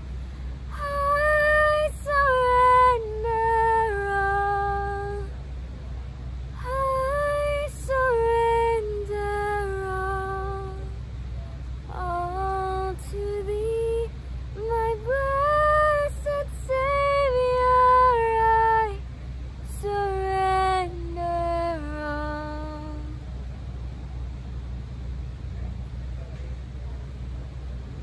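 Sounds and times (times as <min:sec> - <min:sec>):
steady low rumble: 0:00.0 - 0:28.0
woman singing unaccompanied: 0:00.7 - 0:05.4, 0:06.6 - 0:11.0, 0:11.9 - 0:23.2.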